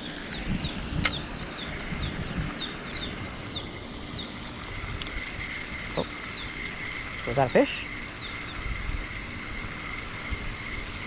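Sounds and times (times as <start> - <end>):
wind rumble on microphone: 0.0 - 7.3, 8.2 - 11.0
small bird chirping: 0.0 - 8.9
high insect drone: 0.0 - 11.0
sharp click: 1.0 - 1.2.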